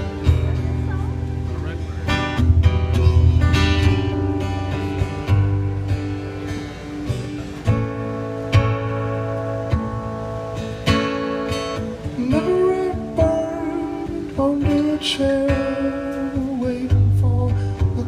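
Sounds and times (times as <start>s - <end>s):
acoustic guitar strumming: 0.0s - 18.0s
person singing: 12.0s - 18.0s.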